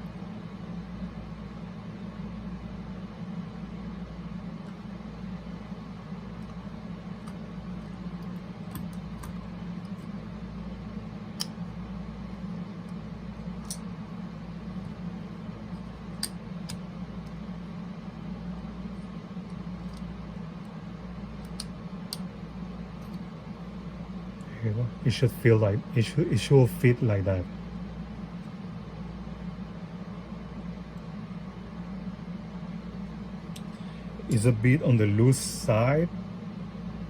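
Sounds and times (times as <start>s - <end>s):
low background hum: 0.0s - 37.0s
light clicks of small parts: 21.4s - 22.3s.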